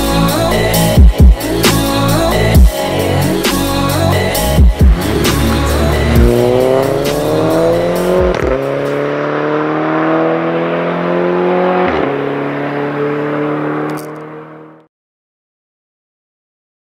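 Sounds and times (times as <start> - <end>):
car engine accelerating: 4.3 - 14.9.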